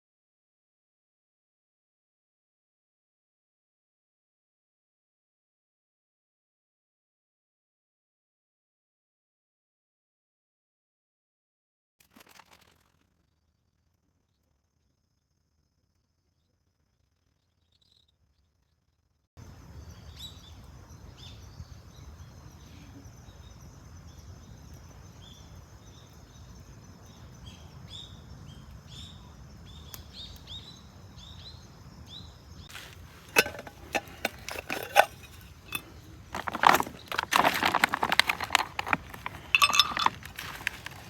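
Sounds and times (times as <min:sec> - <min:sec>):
small bird chirping: 0:17.3 - 0:18.8
sharp clinks and knocks: 0:33.1 - 0:41.0.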